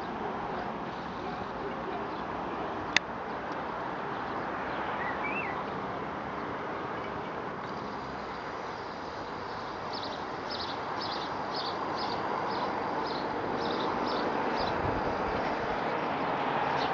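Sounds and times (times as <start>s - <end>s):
rushing outdoor noise: 0.0s - 16.9s
small bird chirping: 9.5s - 14.8s.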